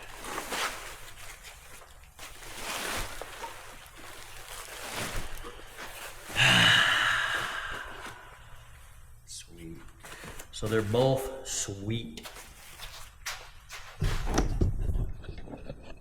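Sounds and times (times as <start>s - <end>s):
packing paper and bubble wrap rustling: 0.0s - 14.2s.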